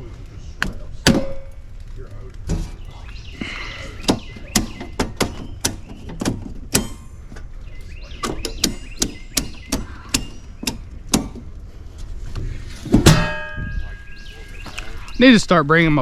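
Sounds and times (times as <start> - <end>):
hammer strikes: 4.1 - 7.2, 8.2 - 11.4.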